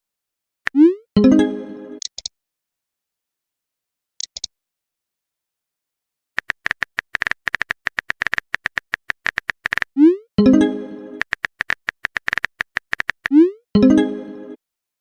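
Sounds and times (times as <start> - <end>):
phone keyboard typing clicks: 2.0 - 2.3, 4.2 - 4.5, 6.4 - 9.9, 11.2 - 13.4.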